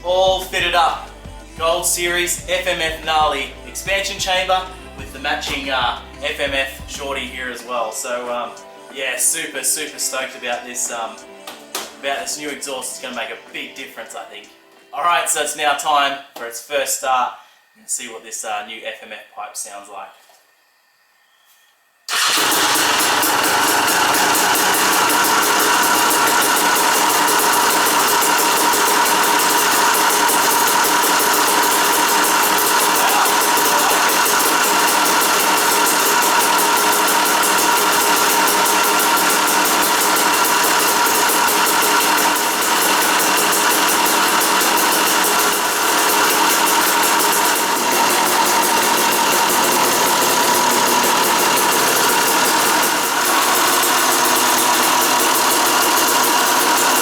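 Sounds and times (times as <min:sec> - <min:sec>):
two-stroke dirt bike engine running: 0:00.0 - 0:07.3, 0:22.1 - 0:57.0.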